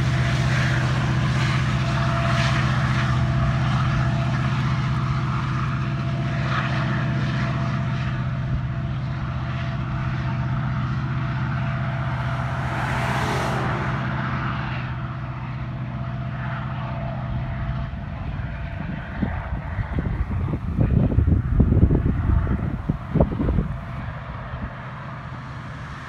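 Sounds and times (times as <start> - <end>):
diesel freight train droning: 0.0 - 26.0
truck swishing past: 9.7 - 17.8.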